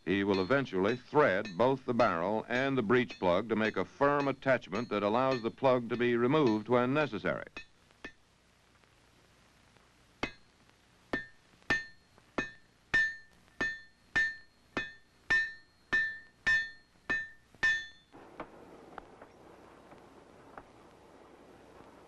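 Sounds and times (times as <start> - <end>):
hammer striking iron on anvil: 0.3 - 6.7, 10.2 - 10.4, 11.1 - 18.1.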